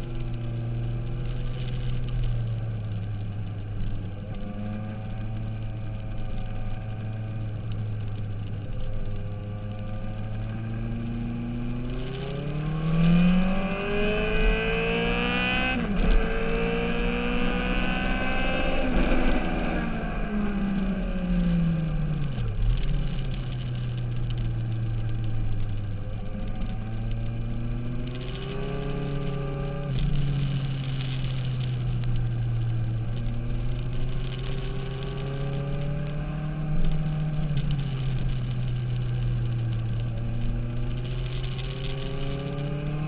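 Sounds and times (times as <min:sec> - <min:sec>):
motorcycle engine revving: 0:03.8 - 0:43.0.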